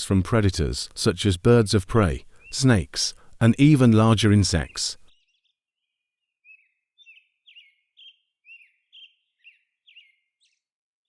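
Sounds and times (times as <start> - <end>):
faint short bird chirps: 5.1 - 10.7.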